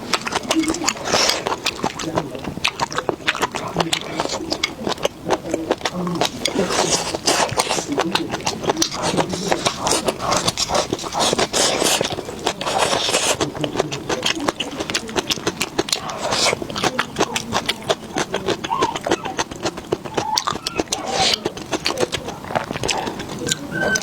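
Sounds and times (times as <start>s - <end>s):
person chewing: 0.0s - 24.0s.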